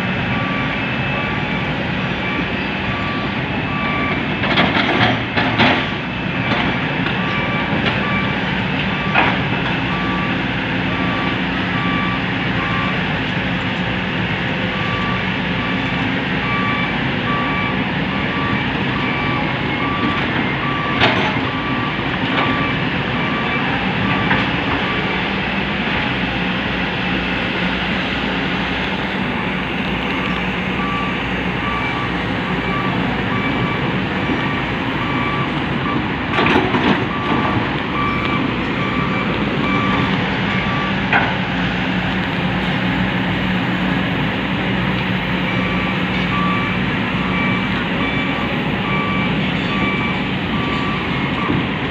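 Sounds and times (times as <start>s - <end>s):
reversing beeper beeping: 0.0s - 13.2s, 14.5s - 26.4s, 29.0s - 41.3s, 43.1s - 51.8s
diesel truck engine running: 0.0s - 51.9s.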